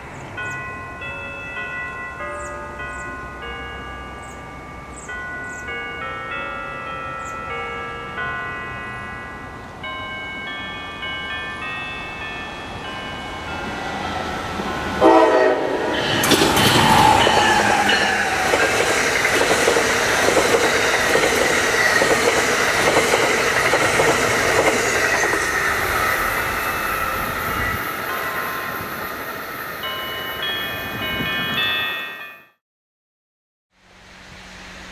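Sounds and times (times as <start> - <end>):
train passing at speed: 2.1 - 32.3
train horn blast: 14.9 - 16.0.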